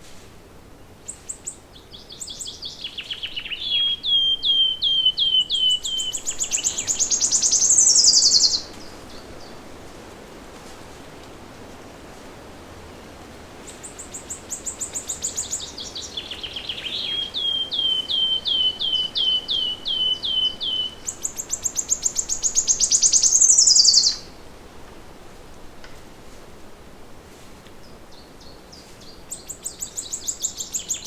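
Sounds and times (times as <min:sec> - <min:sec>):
forest background hiss: 0:00.0 - 0:31.0
songbird singing: 0:00.8 - 0:09.7, 0:13.6 - 0:24.4, 0:27.7 - 0:31.0.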